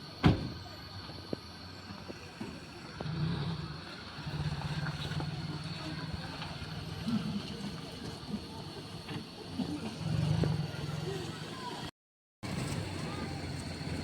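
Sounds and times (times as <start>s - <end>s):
engine low drone: 0.0s - 14.0s
loud thump: 0.2s - 0.7s.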